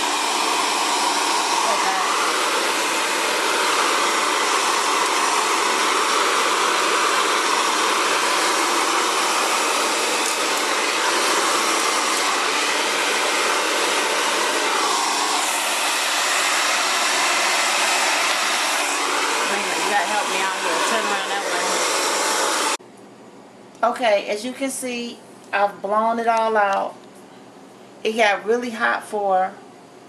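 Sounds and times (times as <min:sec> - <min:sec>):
hair dryer blowing: 0:00.0 - 0:22.8.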